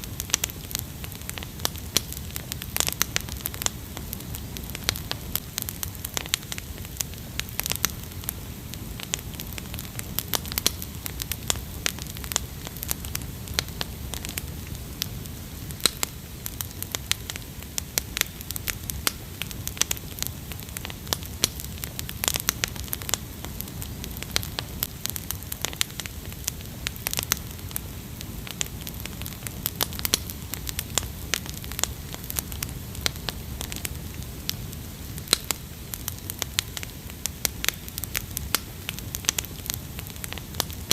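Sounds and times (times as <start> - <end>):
wood fire crackling: 0.0 - 40.9
sharp pops and snaps: 9.0 - 15.1, 15.7 - 27.8, 28.4 - 34.6, 35.2 - 40.9.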